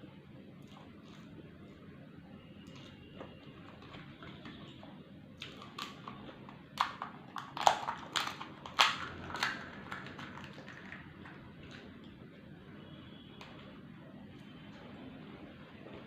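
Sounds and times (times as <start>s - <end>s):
crunchy snack chewing: 5.4s - 11.0s.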